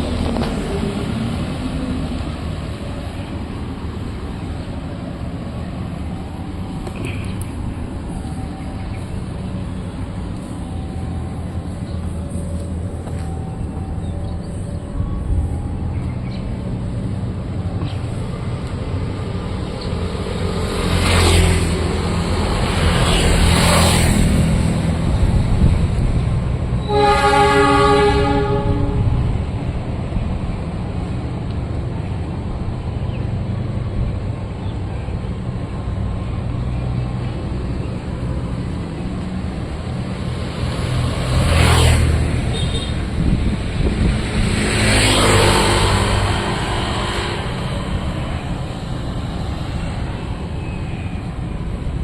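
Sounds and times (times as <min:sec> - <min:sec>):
train engine rumble: 0:00.0 - 0:52.0
train horn: 0:26.8 - 0:29.2.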